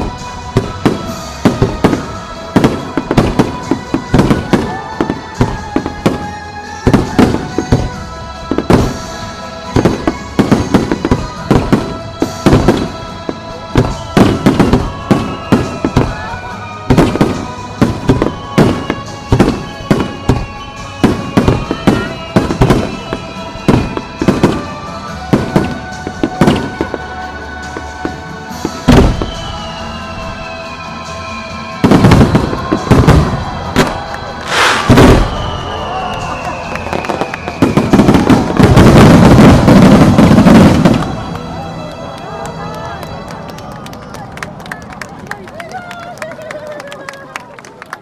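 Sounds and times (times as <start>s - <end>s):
music with held notes: 0.0s - 46.8s
firework shells bursting: 31.9s - 41.2s.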